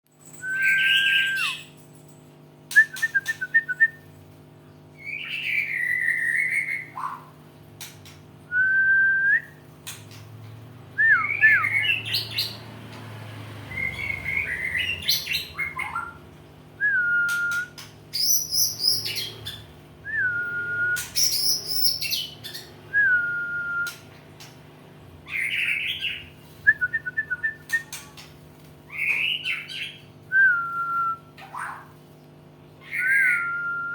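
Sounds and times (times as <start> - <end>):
bird singing whistles and trills: 0.4 - 1.7, 2.7 - 4.0, 5.0 - 7.2, 11.0 - 12.6, 13.7 - 16.2, 16.8 - 24.1, 25.3 - 28.0, 28.9 - 31.7, 32.8 - 33.9
steady low hum: 1.2 - 33.9.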